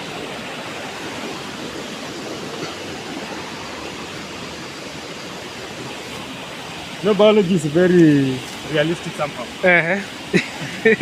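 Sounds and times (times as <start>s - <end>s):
flowing water rushing: 0.0s - 11.0s.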